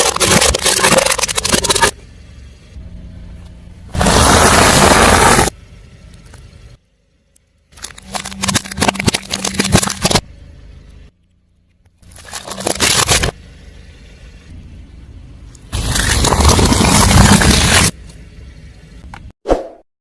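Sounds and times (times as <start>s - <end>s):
tyre crushing brittle objects: 0.0s - 2.0s, 7.7s - 10.2s, 12.0s - 13.4s, 15.8s - 18.0s
low steady hum: 0.0s - 4.0s, 5.5s - 16.6s.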